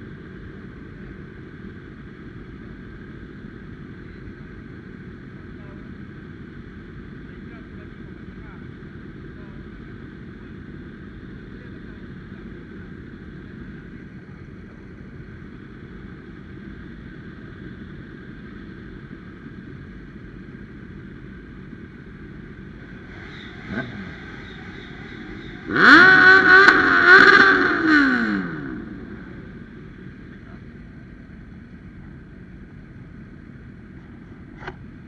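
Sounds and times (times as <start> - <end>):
engine and road drone: 0.0 - 35.0
motorcycle engine revving: 21.8 - 30.6.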